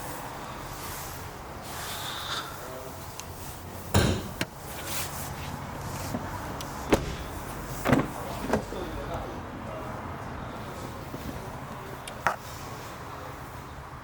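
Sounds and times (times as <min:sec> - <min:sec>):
steady background hum: 0:02.4 - 0:09.8
car doors clunking: 0:04.0 - 0:04.9, 0:05.8 - 0:09.0.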